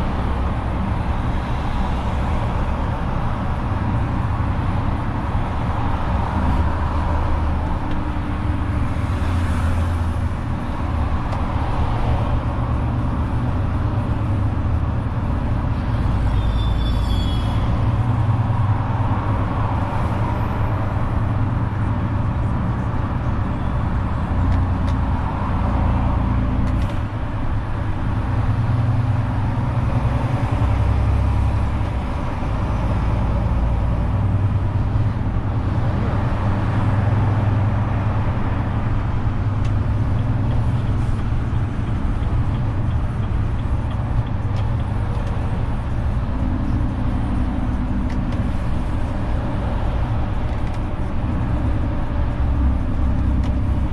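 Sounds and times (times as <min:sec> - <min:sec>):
high squeal: 0:16.2 - 0:17.8.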